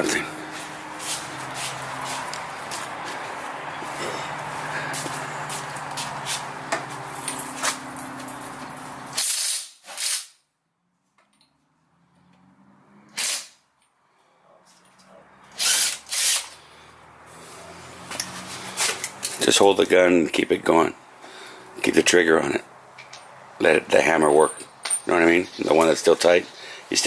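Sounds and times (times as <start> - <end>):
pneumatic tool air hissing: 9.2 - 10.3, 13.2 - 13.6, 15.6 - 16.6.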